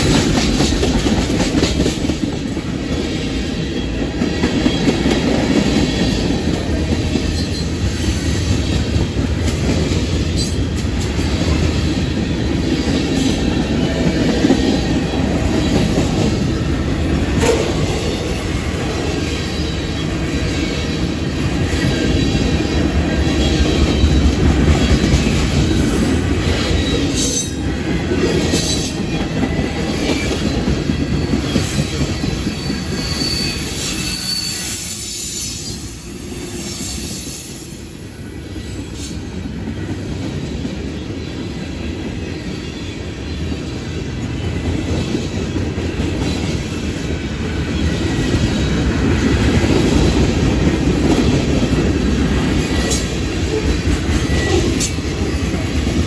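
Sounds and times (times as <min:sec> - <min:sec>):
freight train rumbling on rails: 0:00.0 - 0:56.0
thin wheel squeal: 0:32.5 - 0:35.8.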